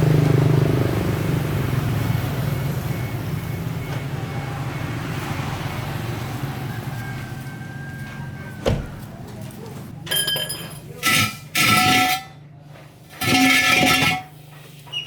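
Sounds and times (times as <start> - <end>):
vehicle engine droning: 0.0 - 10.0.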